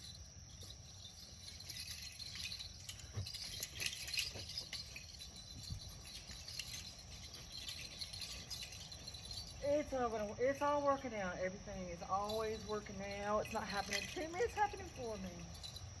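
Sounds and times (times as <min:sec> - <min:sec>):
faint clicks and rustles: 0:00.0 - 0:11.0
insects chirping: 0:00.0 - 0:16.0.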